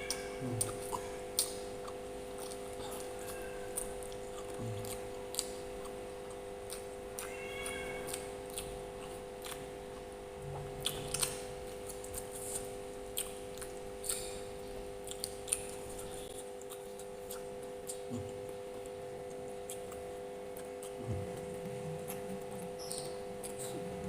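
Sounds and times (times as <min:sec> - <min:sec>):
chewing with mouth smacks: 0:00.0 - 0:24.0
low hum: 0:10.2 - 0:11.7.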